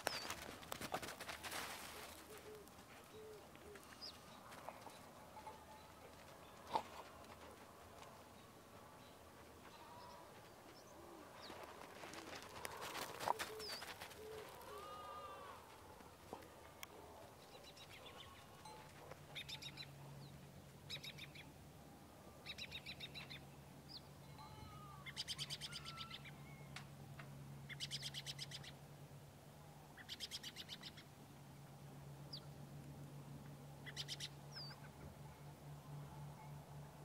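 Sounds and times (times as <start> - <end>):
low steady hum: 0.0 - 37.0
bird chirps: 33.8 - 35.0.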